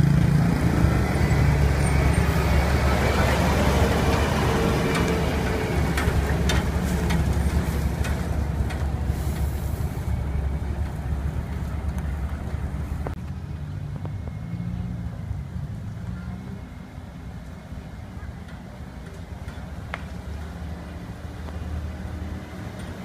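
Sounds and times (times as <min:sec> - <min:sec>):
diesel truck engine rumbling: 0:00.0 - 0:23.0.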